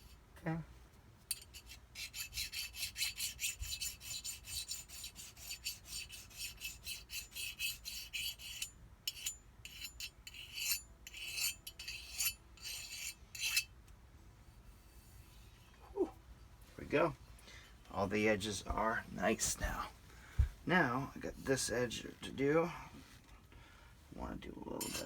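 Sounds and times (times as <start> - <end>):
hand file scraping metal: 1.3 - 13.7, 24.7 - 25.0.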